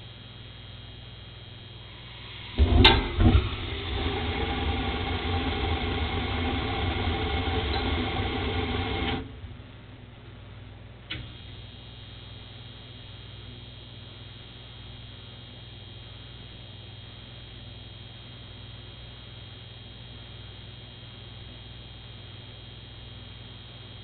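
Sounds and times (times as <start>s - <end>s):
gas burners rushing: 1.9s - 9.6s
gas burners lighting with pops: 2.0s - 9.7s, 11.0s - 11.6s
click: 11.1s - 11.5s.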